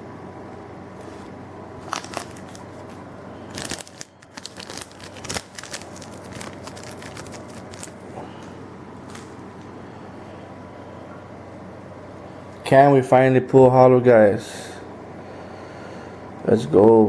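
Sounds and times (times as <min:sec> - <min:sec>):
foil wrapper crinkling and tearing: 0:01.8 - 0:09.7.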